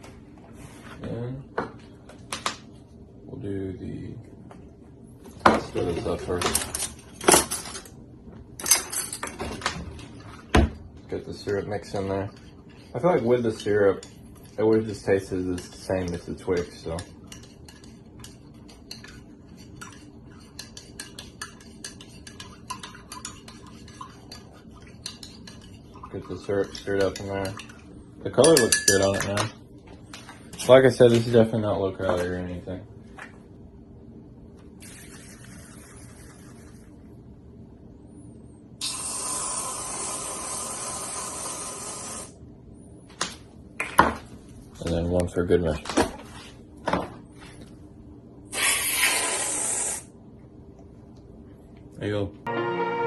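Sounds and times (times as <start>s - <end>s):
spoon clinking against cup: 28.4s - 29.4s.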